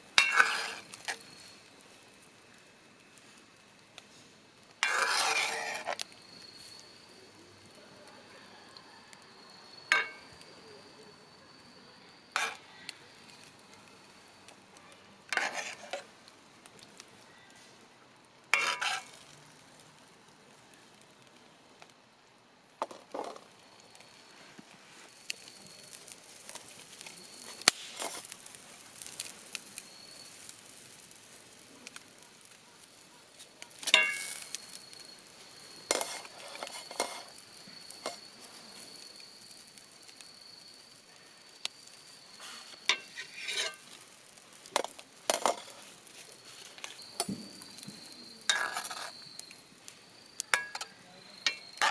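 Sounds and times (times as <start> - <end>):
food sizzling: 0.0 - 8.0, 9.3 - 17.4, 18.4 - 20.3, 22.8 - 51.9
metal utensil clinking cookware: 0.2 - 1.2, 9.9 - 10.4, 18.6 - 19.2, 33.8 - 34.5, 35.9 - 37.3, 42.9 - 43.8, 48.5 - 49.1, 50.5 - 51.9.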